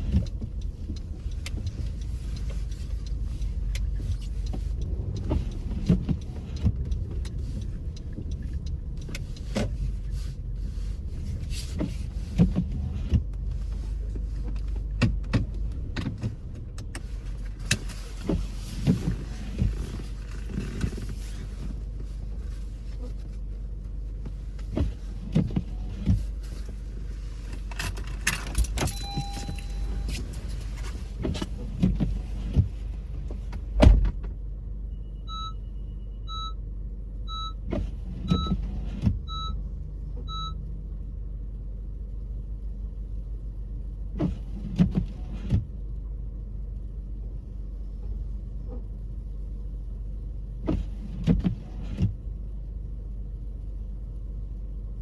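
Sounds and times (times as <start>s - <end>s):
road and engine rumble: 0.0s - 55.0s
short electronic beeps: 28.8s - 30.2s.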